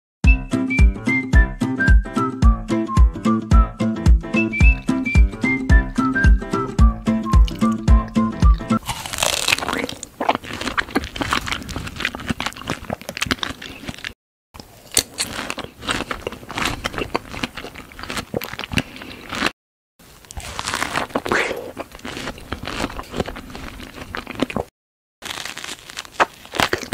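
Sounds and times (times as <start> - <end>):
biting and chewing strawberries: 6.8 - 19.5, 20.2 - 26.9.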